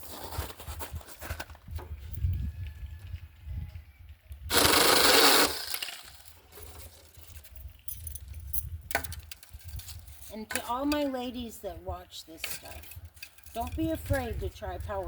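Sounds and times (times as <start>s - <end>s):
mini chainsaw cutting branch: 4.5s - 6.3s.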